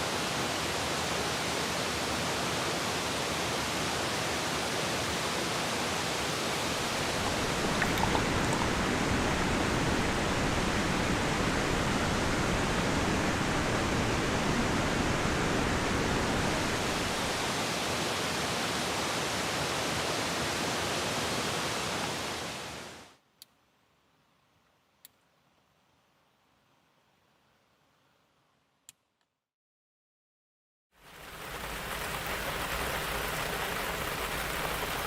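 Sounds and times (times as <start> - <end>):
heavy rain hissing: 6.5 - 17.8.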